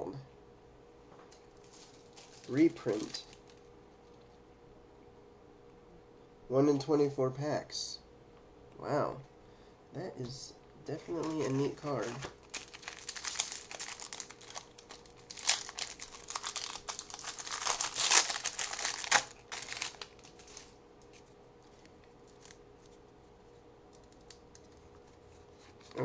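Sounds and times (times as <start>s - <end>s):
wrapper tearing and crinkling: 1.6s - 3.6s, 11.1s - 21.3s, 22.2s - 22.6s.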